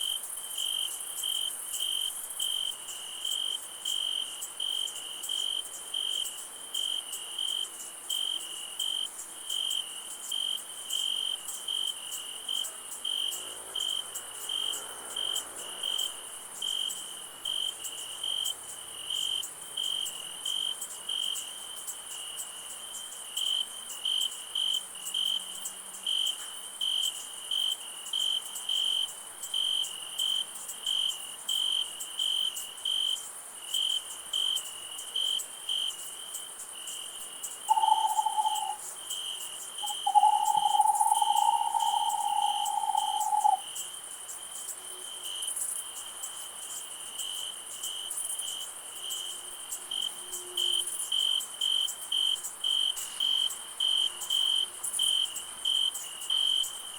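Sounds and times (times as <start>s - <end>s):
crickets chirping: 0.0s - 56.9s
high insect hiss: 0.0s - 56.9s
loud held tone: 37.7s - 38.8s, 39.8s - 43.6s.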